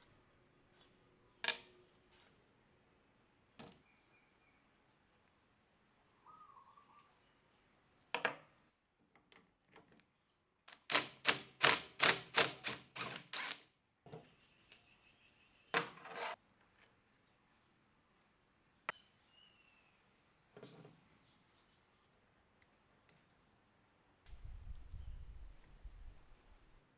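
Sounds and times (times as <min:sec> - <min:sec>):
sharp workshop knocks and clicks: 0:10.7 - 0:13.6.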